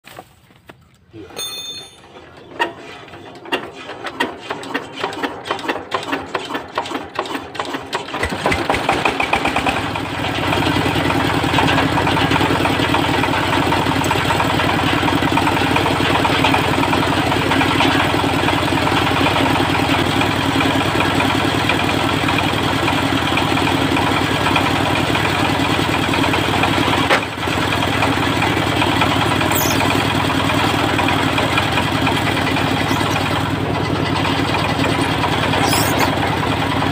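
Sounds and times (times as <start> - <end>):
diesel engine starting: 2.0 - 36.9.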